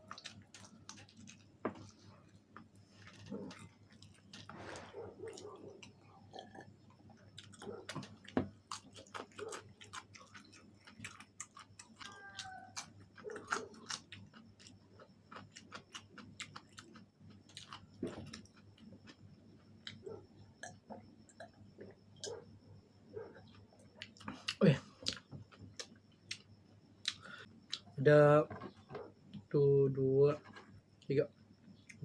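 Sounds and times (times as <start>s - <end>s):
person chewing and biting food: 0.0s - 6.7s, 7.4s - 19.2s.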